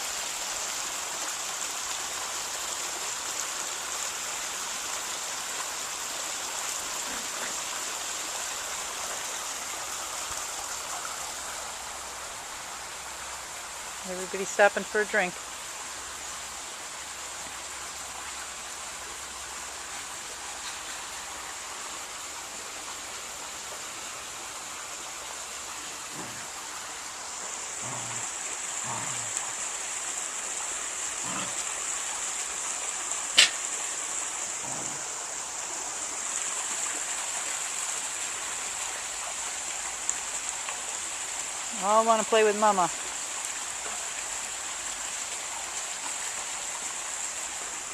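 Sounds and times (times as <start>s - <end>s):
outdoor background hiss: 0.0s - 47.9s
sharp click: 33.4s - 33.6s.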